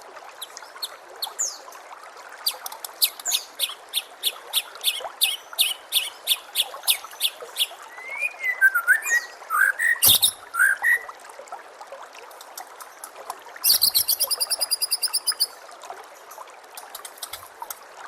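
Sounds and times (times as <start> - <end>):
faint trickle of running water: 0.0 - 18.0
songbird whistling and trilling: 5.2 - 11.1, 13.7 - 15.5.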